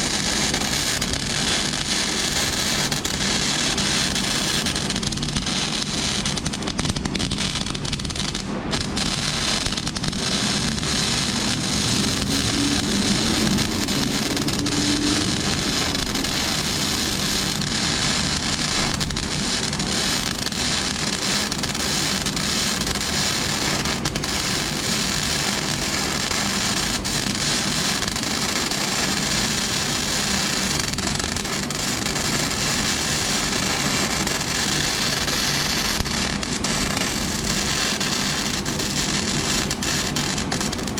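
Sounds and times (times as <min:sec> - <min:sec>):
welding arc crackling: 0:00.0 - 0:40.9.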